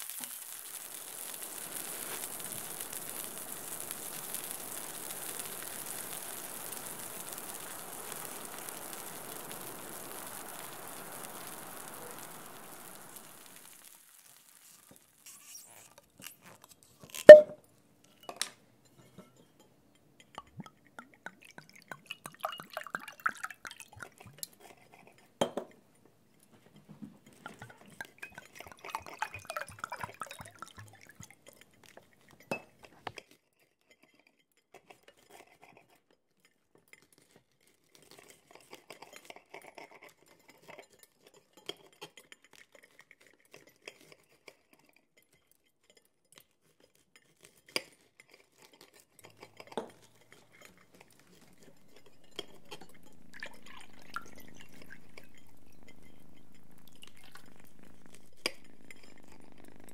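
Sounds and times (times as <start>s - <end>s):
dishes and cutlery clinking: 17.2s - 22.7s, 24.2s - 57.8s.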